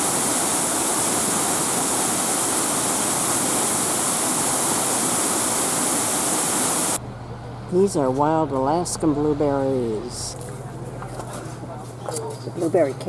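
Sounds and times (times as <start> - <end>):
rushing water: 0.0 - 7.0.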